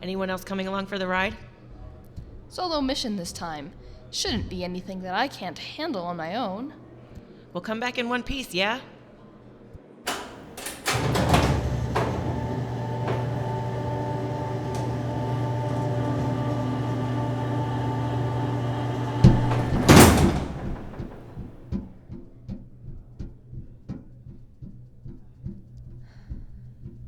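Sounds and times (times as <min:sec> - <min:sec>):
electrical hum with held tones: 0:10.1 - 0:21.5
sharp clicks and knocks: 0:10.1 - 0:21.8.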